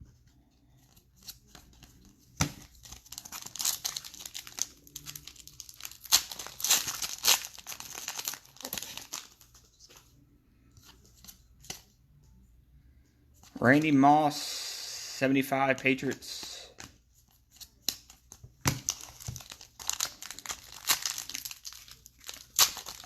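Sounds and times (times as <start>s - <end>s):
cards rustling: 0.3s - 11.9s, 15.6s - 23.0s
foil wrapper crinkling: 2.6s - 9.5s, 18.8s - 23.0s.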